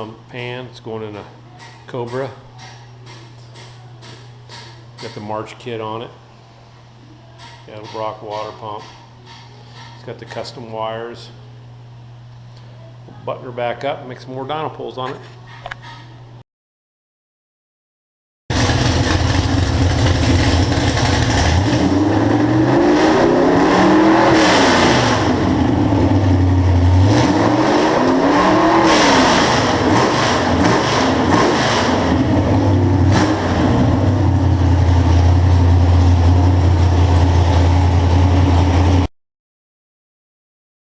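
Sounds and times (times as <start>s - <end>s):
engine revving on a dyno: 18.5s - 39.1s.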